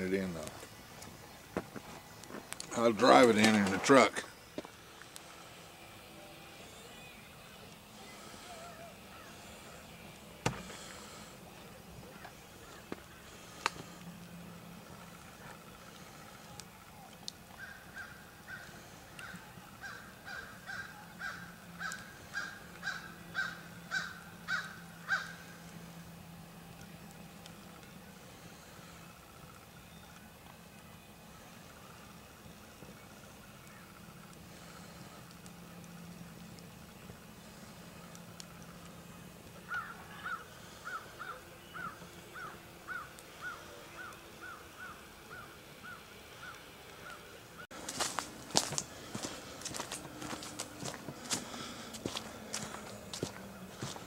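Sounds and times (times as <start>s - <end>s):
bird cawing: 8.0s - 9.8s, 17.6s - 25.6s, 39.7s - 47.2s.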